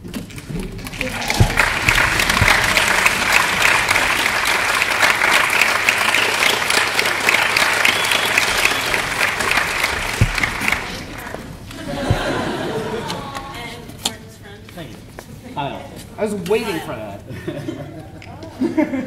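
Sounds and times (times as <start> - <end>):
audience applauding: 0.3 - 13.5.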